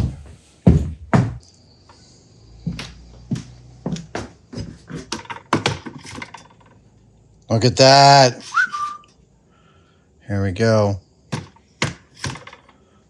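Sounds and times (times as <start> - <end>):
loud knocks on workbench: 11.3 - 12.6.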